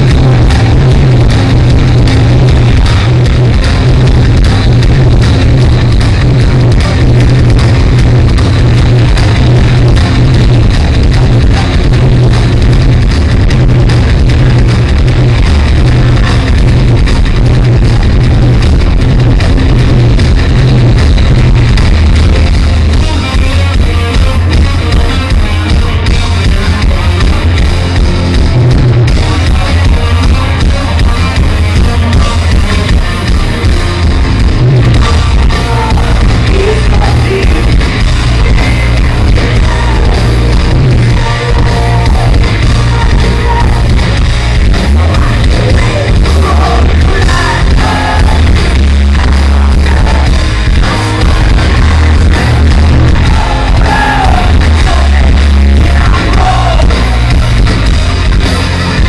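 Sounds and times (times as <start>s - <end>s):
heavy metal band playing: 0.0s - 59.0s
person singing: 35.0s - 44.0s, 45.0s - 57.4s.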